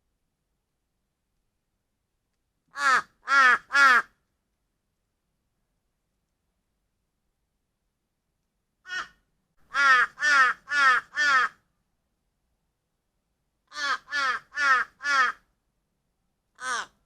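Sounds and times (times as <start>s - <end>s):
crow cawing: 2.8s - 4.2s, 8.9s - 11.6s, 13.7s - 15.5s, 16.6s - 17.0s.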